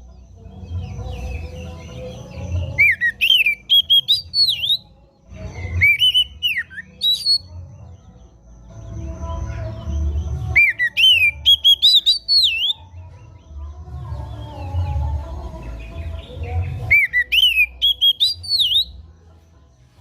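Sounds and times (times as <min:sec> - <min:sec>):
bird whistling phrases: 0:02.8 - 0:04.8, 0:05.8 - 0:07.5, 0:10.5 - 0:12.8, 0:16.9 - 0:18.9.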